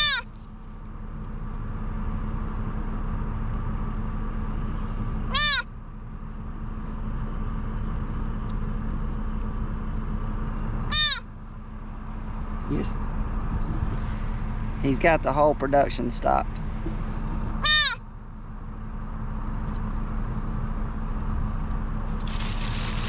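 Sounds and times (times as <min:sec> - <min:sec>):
fawn bleating: 0:00.0 - 0:00.3, 0:05.3 - 0:05.7, 0:10.9 - 0:11.3, 0:17.6 - 0:18.0
low engine hum: 0:00.0 - 0:23.0.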